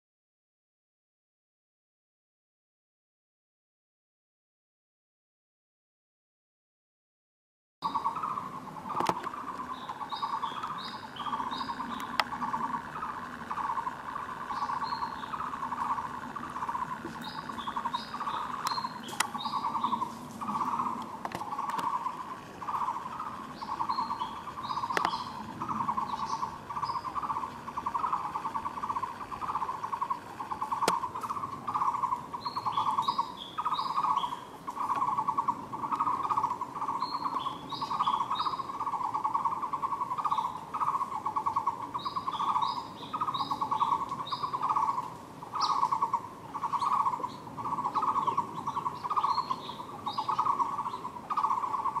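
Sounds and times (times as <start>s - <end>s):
bird rapid trilled call: 7.8s - 52.0s.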